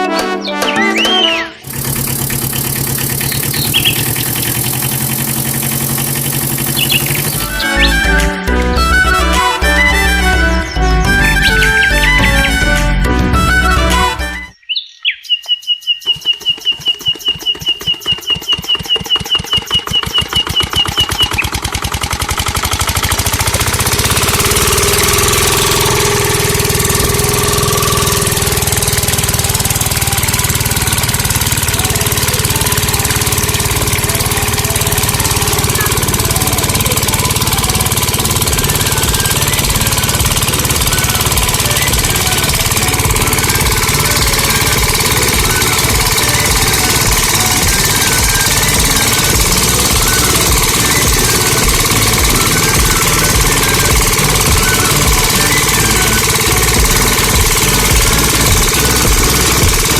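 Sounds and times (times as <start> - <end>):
small diesel engine knocking: 1.0 - 14.4, 16.0 - 59.9.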